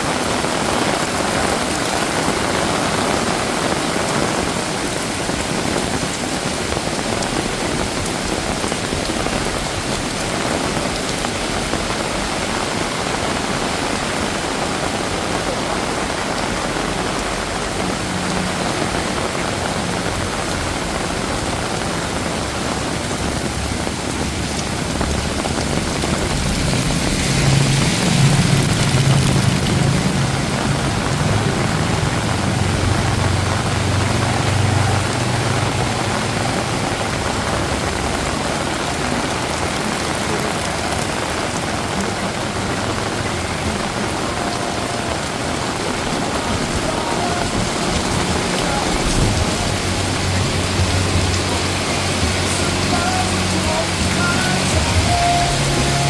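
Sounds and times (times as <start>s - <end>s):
heavy rain falling: 0.0s - 56.0s
vehicle engine hum passing: 16.3s - 56.0s.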